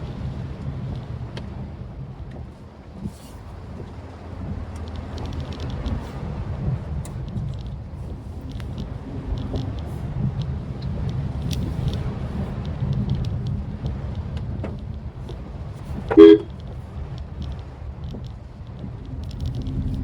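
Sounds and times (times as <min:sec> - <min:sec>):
car driving low rumble: 0:00.0 - 0:20.0
faint ticks: 0:02.3 - 0:06.2, 0:07.0 - 0:20.0
car horn toot: 0:16.0 - 0:16.6.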